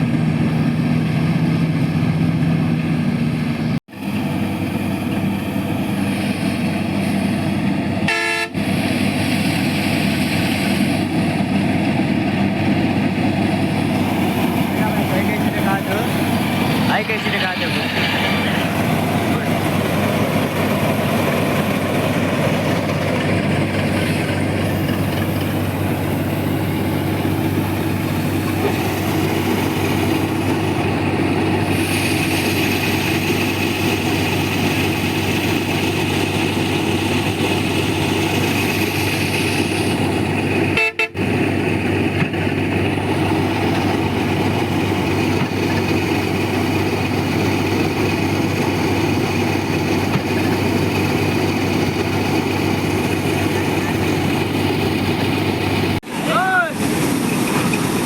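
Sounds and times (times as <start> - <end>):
combine harvester engine drone: 0.0 - 58.0
high whine: 3.5 - 48.8.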